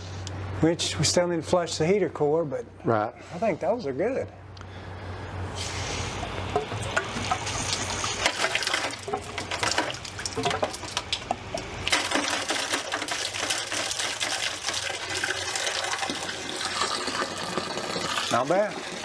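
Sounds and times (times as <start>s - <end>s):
water pouring and splashing: 6.2s - 19.0s
crackle of drops: 6.4s - 13.3s.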